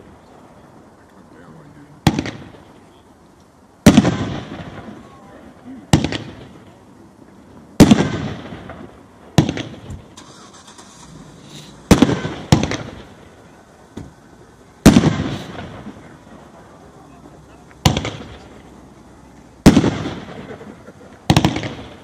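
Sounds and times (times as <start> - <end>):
firework booming breaks: 2.0 - 2.8, 3.8 - 6.8, 7.8 - 10.2, 11.7 - 14.2, 14.8 - 17.2, 17.8 - 18.7, 19.6 - 22.0.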